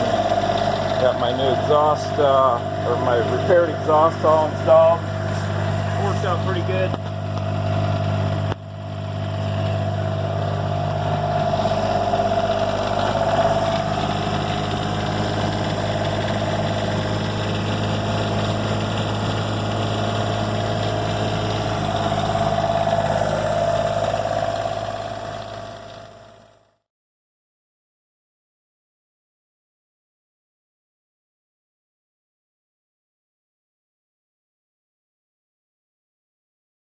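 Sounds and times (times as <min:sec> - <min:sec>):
diesel generator running: 0:00.0 - 0:26.8.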